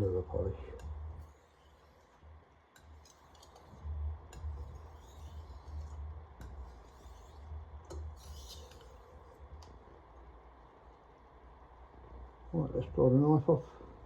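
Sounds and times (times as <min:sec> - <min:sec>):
knife stroked on whetstone: 0:00.8 - 0:02.2, 0:02.8 - 0:09.3
gritty scrape: 0:02.8 - 0:09.2.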